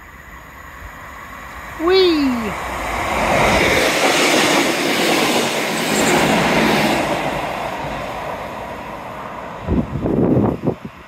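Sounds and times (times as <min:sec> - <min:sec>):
diesel train passing: 0:00.0 - 0:11.0
wind bumps on microphone: 0:09.6 - 0:11.0.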